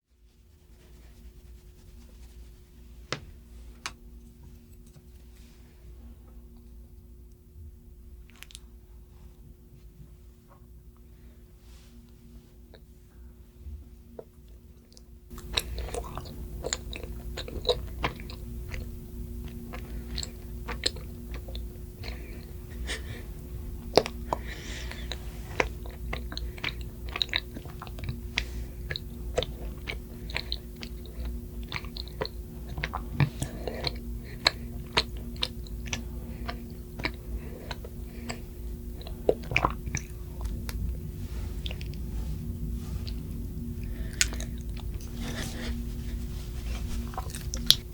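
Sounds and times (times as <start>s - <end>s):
wet chewing and biting: 14.9s - 23.1s, 23.8s - 45.8s, 46.8s - 47.9s
mouth clicks and smacks: 44.1s - 45.4s, 47.1s - 47.9s.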